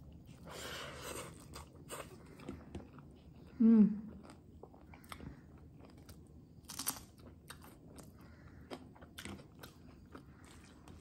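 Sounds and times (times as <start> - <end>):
person chewing: 0.0 - 11.0.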